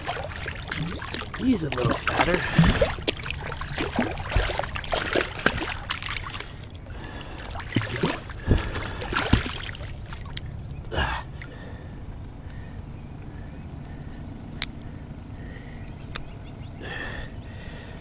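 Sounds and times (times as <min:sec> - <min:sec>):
fish thrashing at water surface: 0:00.0 - 0:10.5
water sloshing against boat: 0:00.0 - 0:17.9
low steady rumble: 0:00.0 - 0:18.0.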